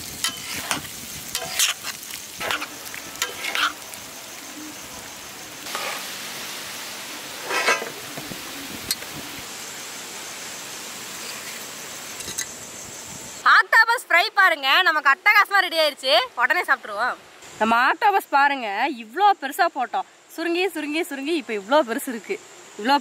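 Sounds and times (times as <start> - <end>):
octopus sizzling on a griddle: 0.0 - 13.4
spatula scraping a griddle: 0.2 - 3.8, 5.7 - 6.1, 7.4 - 8.0.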